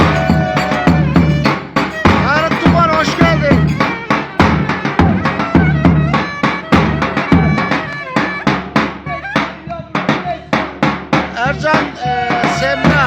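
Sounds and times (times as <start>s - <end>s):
live band dance music: 0.0s - 9.6s
sliding melody instrument: 0.0s - 9.6s
heavy drum beat: 0.0s - 13.0s.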